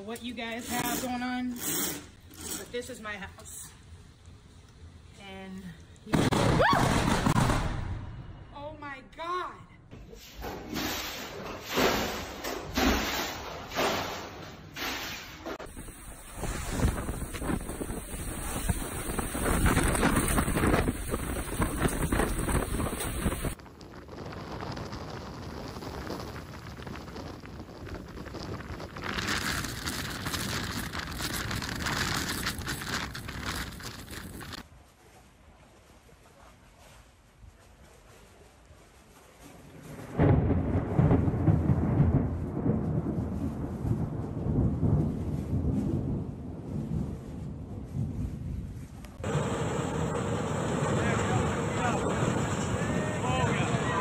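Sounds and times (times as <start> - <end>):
wind: 0.0 - 54.0
small crackling hits: 14.8 - 34.6
heavy rain lashing microphone: 15.4 - 34.7, 39.6 - 54.0
thunder rumbling: 15.6 - 34.6, 39.7 - 54.0.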